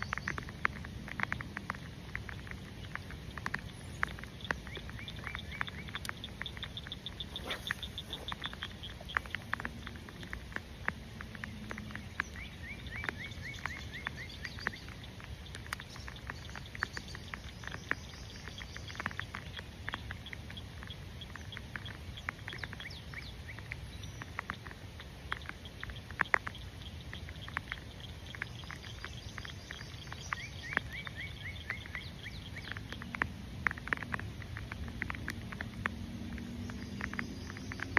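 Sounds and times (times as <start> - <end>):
rain pattering: 0.0 - 37.9
rapid chirping animal calls: 2.4 - 10.0.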